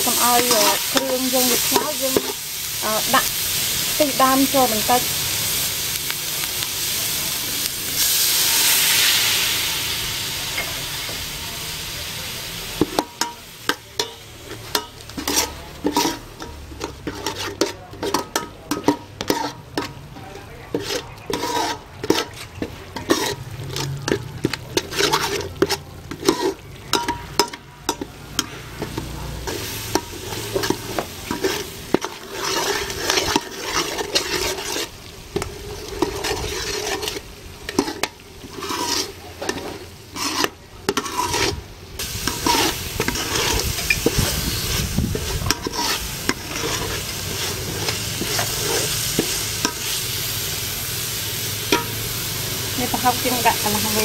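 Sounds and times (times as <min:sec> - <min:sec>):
utensil scraping a pan: 0:00.0 - 0:05.0, 0:12.7 - 0:50.7
food sizzling in hot oil: 0:00.0 - 0:54.0.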